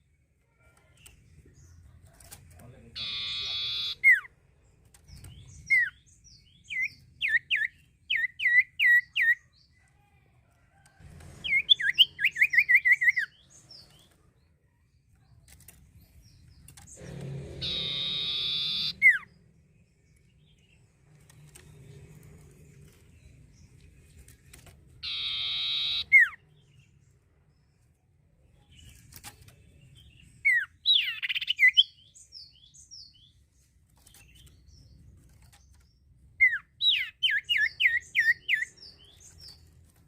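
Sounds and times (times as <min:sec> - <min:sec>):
bird whistling and trilling: 0:03.0 - 0:04.3, 0:11.4 - 0:13.4, 0:17.6 - 0:19.3, 0:25.0 - 0:26.4, 0:30.4 - 0:32.5, 0:36.4 - 0:38.7
harsh buzzy bird note: 0:17.0 - 0:19.2.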